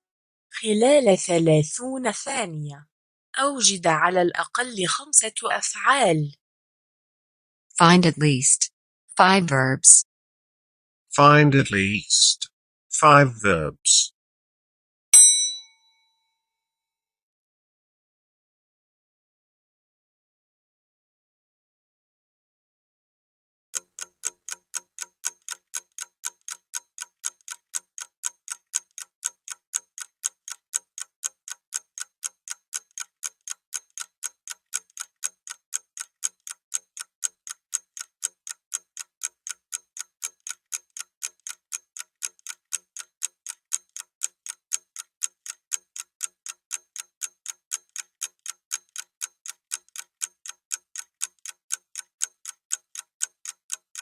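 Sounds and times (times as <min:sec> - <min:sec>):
clock ticking: 0:23.8 - 0:54.0.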